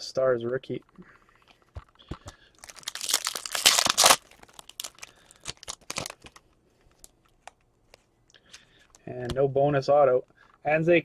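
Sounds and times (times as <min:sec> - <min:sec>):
wrapper crinkling and rustling: 0:01.4 - 0:08.1
foil pack tearing: 0:02.6 - 0:06.4.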